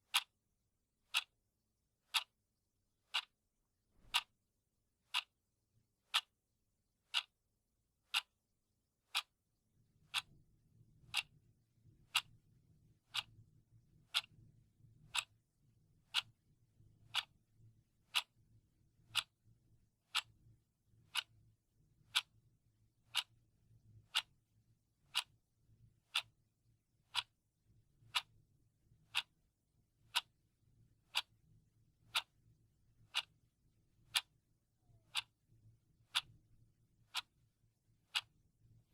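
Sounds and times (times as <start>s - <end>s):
clock ticking: 0.1s - 0.3s, 1.1s - 1.3s, 2.1s - 2.3s, 3.1s - 3.4s, 4.0s - 4.3s, 5.1s - 5.3s, 6.1s - 6.3s, 7.1s - 7.3s, 8.1s - 8.4s, 9.1s - 9.3s, 10.1s - 10.3s, 11.1s - 11.3s, 12.1s - 12.3s, 13.1s - 13.3s, 14.1s - 14.4s, 15.1s - 15.4s, 16.1s - 16.4s, 17.1s - 17.3s, 18.1s - 18.3s, 19.1s - 19.3s, 20.1s - 20.3s, 21.1s - 21.3s, 22.1s - 22.3s, 23.1s - 23.3s, 24.1s - 24.3s, 25.1s - 25.3s, 26.1s - 26.3s, 27.1s - 27.3s, 28.1s - 28.3s, 29.1s - 29.3s, 30.1s - 30.3s, 31.1s - 31.3s, 32.1s - 32.3s, 33.1s - 33.4s, 34.1s - 35.4s, 36.1s - 36.3s, 37.1s - 37.4s, 38.0s - 38.4s.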